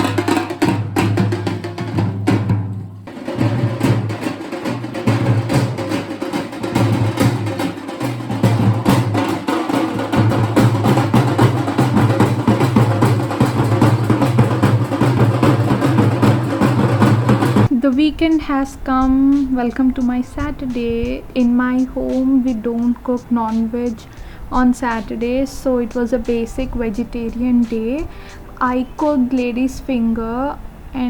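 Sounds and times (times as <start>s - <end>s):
loud fast drumming: 0.0s - 17.8s.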